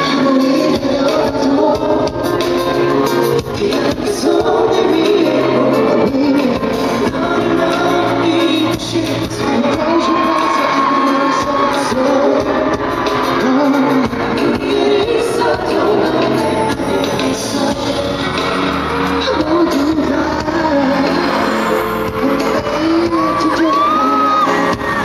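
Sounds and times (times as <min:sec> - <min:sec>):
loud backing track with beat: 0:00.0 - 0:25.0
man singing: 0:00.0 - 0:25.0
audience shouting: 0:09.5 - 0:14.6, 0:17.9 - 0:19.7, 0:20.8 - 0:25.0.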